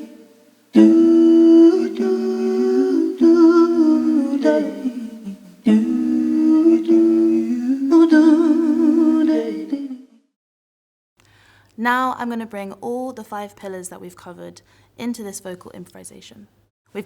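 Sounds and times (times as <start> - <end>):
women humming in harmony: 0.0 - 10.0.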